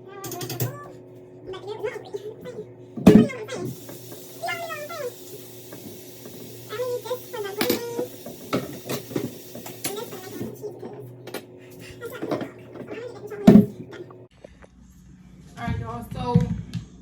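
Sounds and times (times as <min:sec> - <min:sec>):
pots and dishes clinking: 0:05.3 - 0:14.1.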